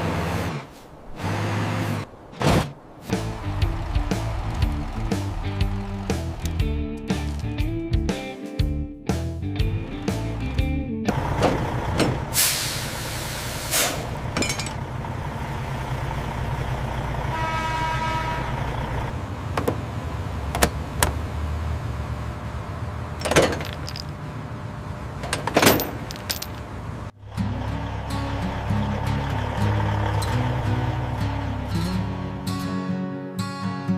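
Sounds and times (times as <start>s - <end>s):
truck engine running: 0.0s - 7.9s, 9.6s - 32.6s
air brake hiss: 12.3s - 14.1s.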